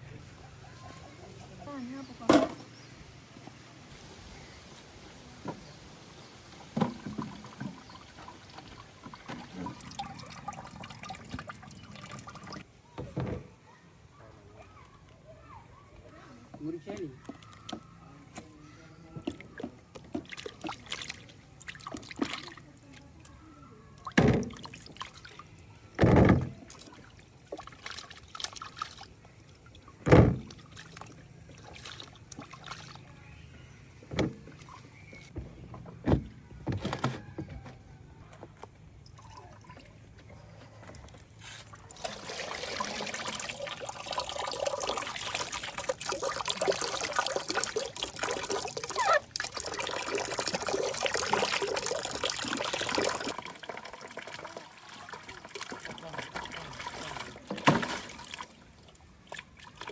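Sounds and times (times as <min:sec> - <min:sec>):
water being poured: 0:06.4 - 0:12.6, 0:24.0 - 0:33.1, 0:39.0 - 0:59.9.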